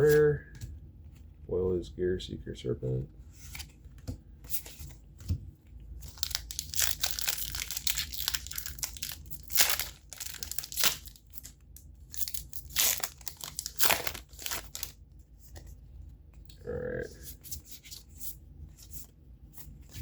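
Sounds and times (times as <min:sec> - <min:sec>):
foil wrapper crinkling and tearing: 0:06.0 - 0:15.0.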